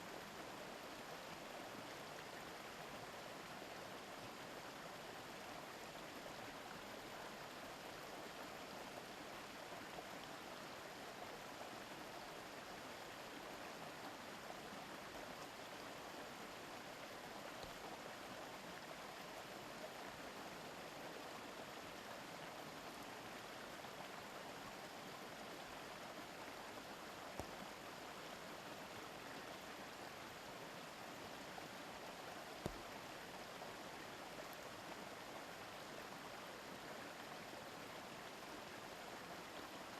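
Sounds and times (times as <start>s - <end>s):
river flowing over stones: 0.0s - 39.9s
faint clicks: 27.3s - 27.6s, 32.6s - 32.9s.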